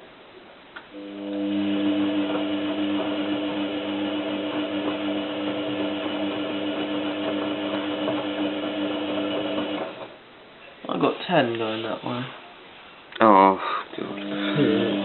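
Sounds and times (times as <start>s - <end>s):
washing machine drum motor whining: 0.9s - 10.2s, 14.1s - 15.0s.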